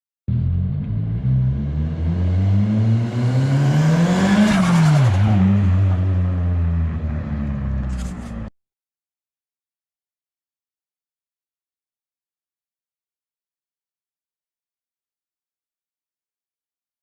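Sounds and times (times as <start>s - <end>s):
car engine revving: 0.3s - 8.5s.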